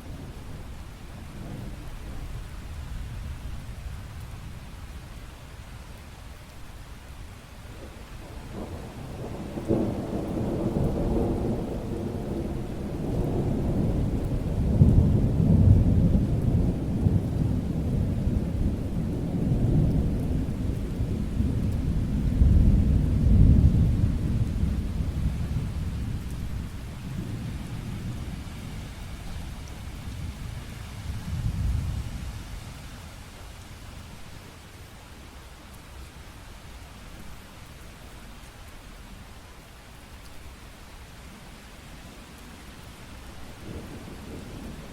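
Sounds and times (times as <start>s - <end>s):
steady rain: 0.0s - 44.9s
thunder rumbling: 8.2s - 32.4s, 43.5s - 44.9s.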